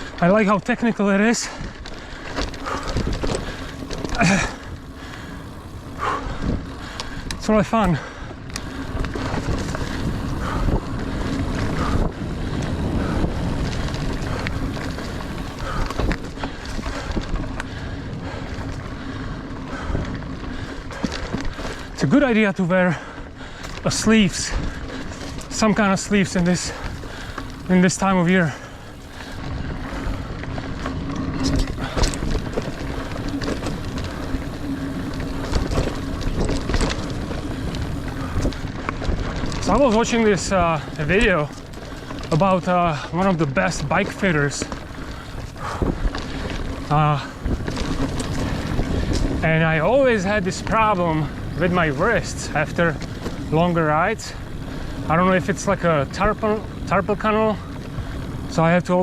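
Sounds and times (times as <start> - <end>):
mountain bike rattling over dirt: 0.0 - 59.0
wind on microphone: 2.4 - 22.0, 43.9 - 58.5.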